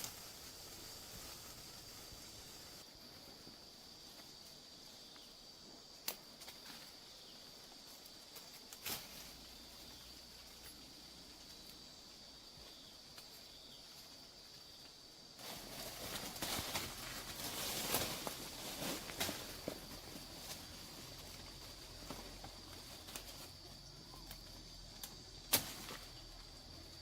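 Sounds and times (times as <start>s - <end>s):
rustling: 0.0s - 4.6s, 6.1s - 27.0s
sharp snaps: 6.0s - 6.6s.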